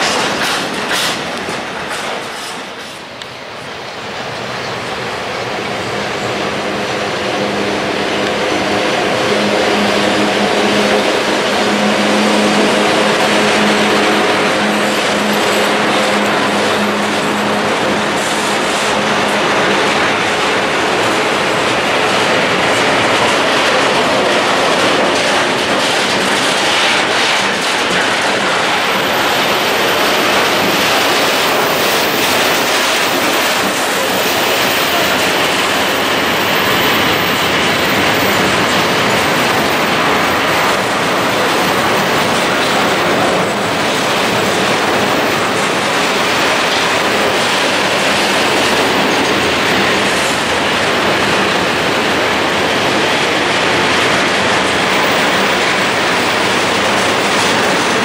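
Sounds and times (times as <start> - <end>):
freight train wheels clattering: 0.0 - 58.0.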